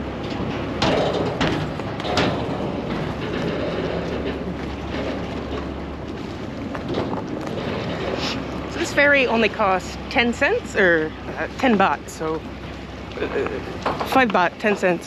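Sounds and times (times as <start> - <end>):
knocks and clatters: 0.0 - 9.6, 13.7 - 15.0
ferry engine running: 0.0 - 15.0.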